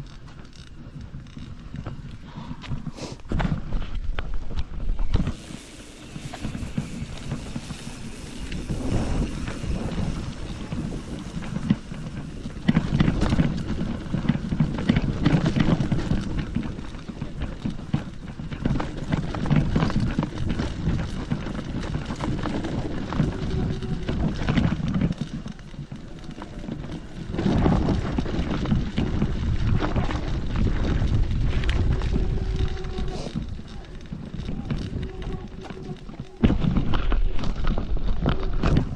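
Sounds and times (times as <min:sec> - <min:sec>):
footsteps on a trail: 0:00.0 - 0:38.9
wind rumbling on microphone: 0:00.0 - 0:38.9.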